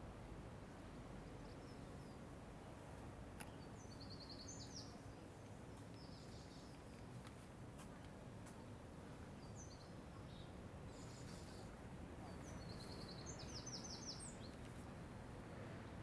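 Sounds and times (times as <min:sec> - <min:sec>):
low rumble of city background: 0:00.0 - 0:16.0
bird chirping: 0:03.4 - 0:05.1, 0:12.2 - 0:14.7.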